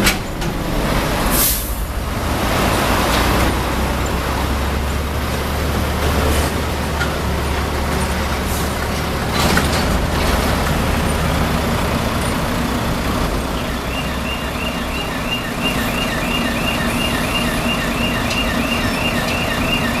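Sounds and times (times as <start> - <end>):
heavy truck engine rumbling: 0.0 - 20.0
electronic warning beeper chirps: 13.6 - 20.0.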